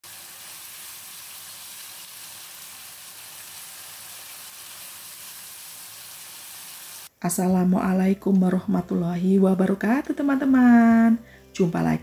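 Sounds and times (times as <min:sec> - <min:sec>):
paste sizzling in hot oil: 0:00.0 - 0:07.1.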